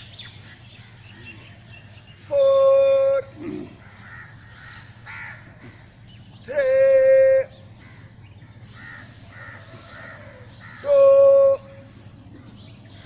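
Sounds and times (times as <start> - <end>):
man calling out counts: 2.2 - 3.8, 6.4 - 7.7, 10.8 - 11.9.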